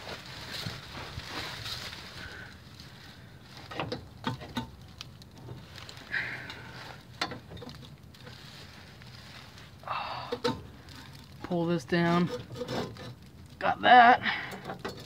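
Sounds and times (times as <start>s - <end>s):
clicks and knocks of parts handled: 3.6s - 8.4s, 10.3s - 11.5s, 14.5s - 15.0s.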